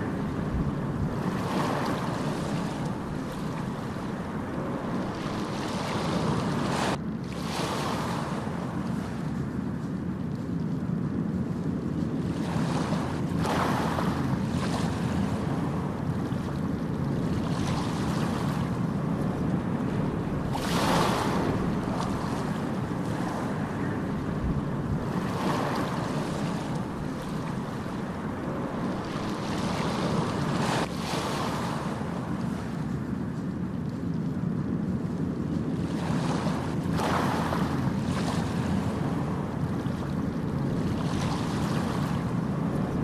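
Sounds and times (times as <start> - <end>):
ocean waves breaking: 0.0 - 43.0.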